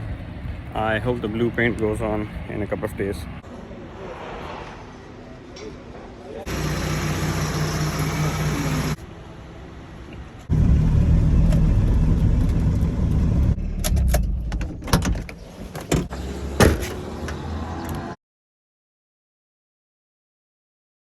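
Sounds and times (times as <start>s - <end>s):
car engine humming: 6.5s - 15.0s.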